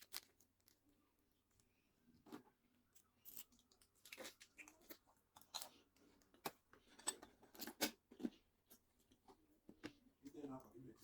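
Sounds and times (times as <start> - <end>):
chewing crisp food: 3.2 - 6.5.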